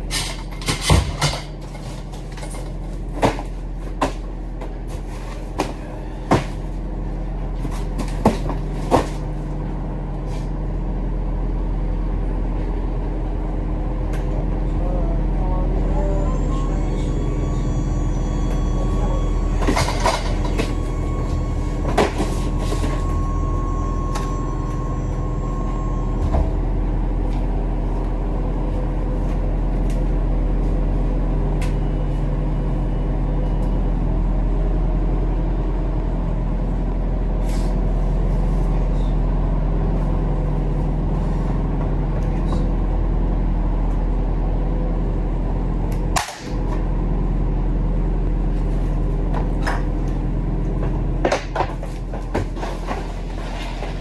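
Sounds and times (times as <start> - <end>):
diesel truck engine running: 0.0 - 54.0
steady high tone: 15.6 - 27.2.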